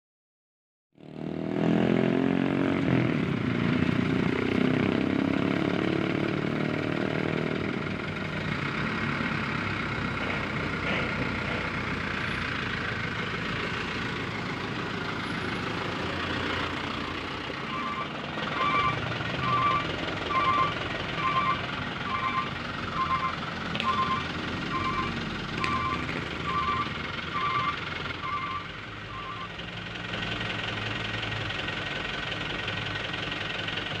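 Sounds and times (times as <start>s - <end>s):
heavy truck engine running: 2.5s - 34.0s
truck reversing alarm beeping: 10.2s - 29.8s.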